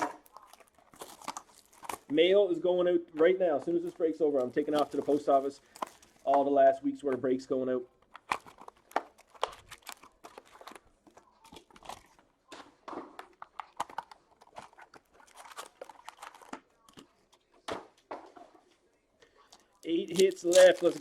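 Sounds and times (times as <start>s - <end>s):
foil wrappers crinkling and tearing: 0.0s - 2.4s, 3.7s - 6.3s, 8.0s - 12.2s, 13.4s - 16.6s, 19.4s - 21.0s
cards being handled: 3.1s - 7.4s, 8.0s - 17.8s, 19.3s - 21.0s.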